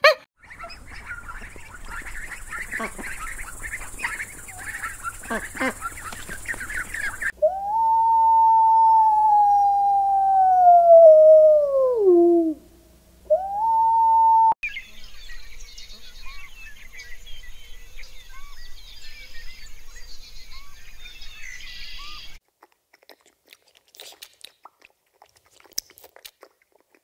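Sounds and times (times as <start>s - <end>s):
small birds chirping: 0.4s - 7.4s, 14.6s - 22.4s
animal howling: 7.4s - 12.7s, 13.3s - 14.6s.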